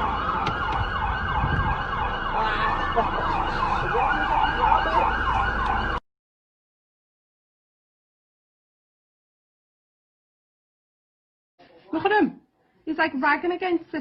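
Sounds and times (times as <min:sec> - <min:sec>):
emergency siren yelping: 0:00.0 - 0:06.0
road noise rumble: 0:00.0 - 0:06.0.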